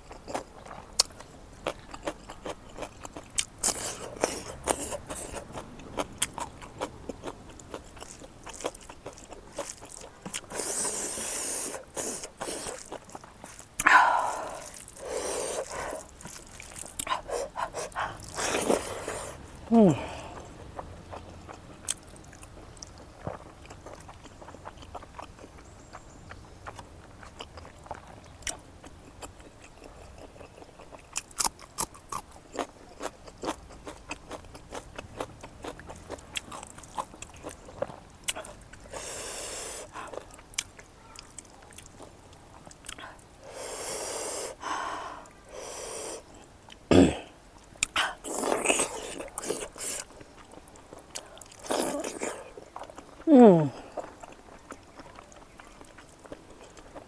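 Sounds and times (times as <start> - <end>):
person chewing: 0.0 - 57.0
heavy breaths through the nose: 43.4 - 46.3.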